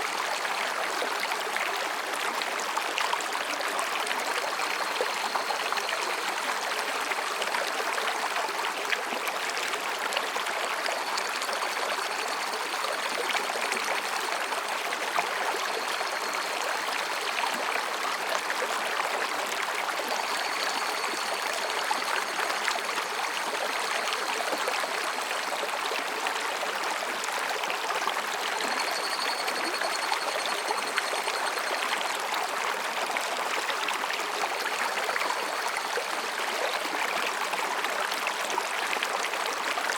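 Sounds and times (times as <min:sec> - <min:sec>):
stream babbling over rocks: 0:00.0 - 0:39.9
faint cicada calls: 0:20.0 - 0:25.4, 0:28.5 - 0:32.1.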